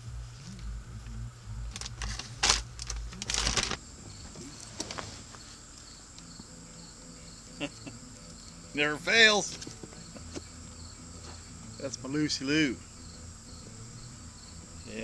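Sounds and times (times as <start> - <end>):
bumping and rustling: 0.0 - 6.1
crickets chirping: 0.0 - 15.0.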